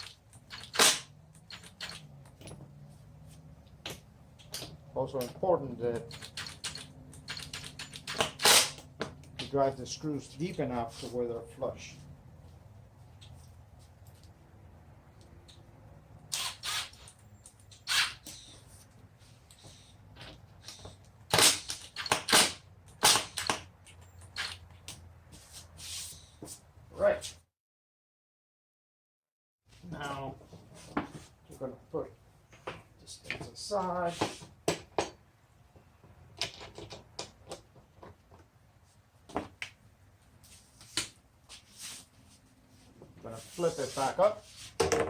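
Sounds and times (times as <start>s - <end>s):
wood and tools knocking on workbench: 44.8s - 45.0s.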